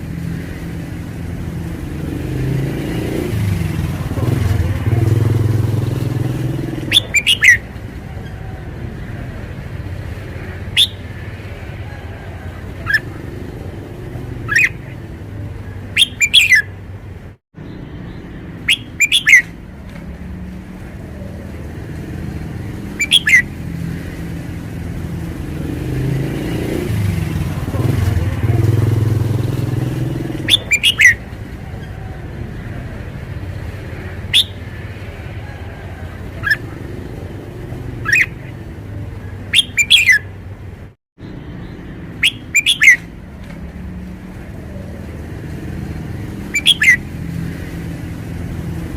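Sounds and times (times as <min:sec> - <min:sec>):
low traffic rumble: 0:00.0 - 0:48.9
bird singing whistled phrases: 0:06.8 - 0:07.6, 0:10.7 - 0:11.1, 0:14.5 - 0:14.9, 0:16.0 - 0:16.7, 0:18.6 - 0:19.6, 0:23.0 - 0:23.5, 0:30.4 - 0:31.2, 0:34.3 - 0:34.6, 0:38.0 - 0:38.4, 0:39.5 - 0:40.3, 0:42.2 - 0:43.1, 0:46.5 - 0:47.0.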